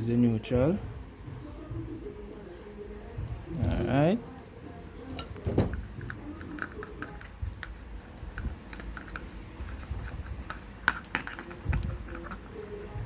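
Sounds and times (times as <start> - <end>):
soft thump: 5.4 - 5.8.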